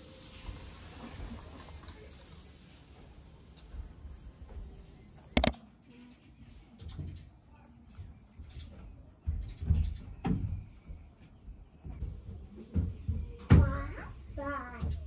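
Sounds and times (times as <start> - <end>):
small birds chirping: 1.1 - 15.0
sharp double click: 5.4 - 5.6.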